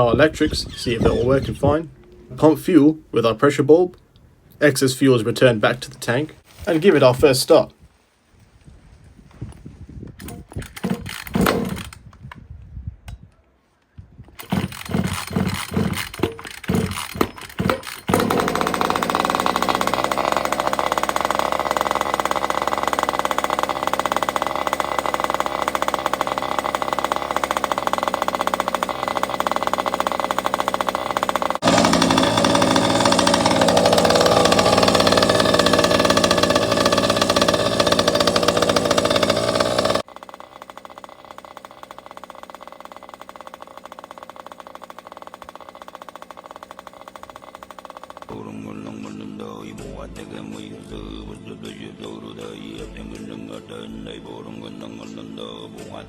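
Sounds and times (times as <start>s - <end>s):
two-stroke engine starting and running: 0.0s - 2.7s, 10.2s - 12.0s, 14.4s - 48.4s.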